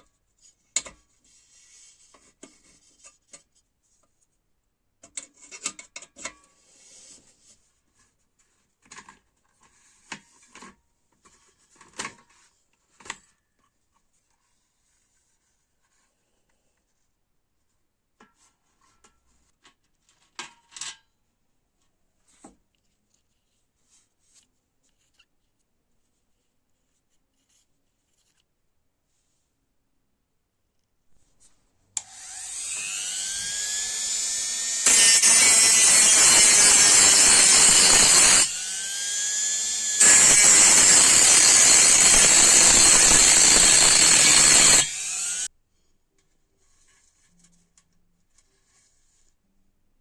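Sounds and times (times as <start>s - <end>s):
rubbing and scraping parts: 32.6s - 45.5s.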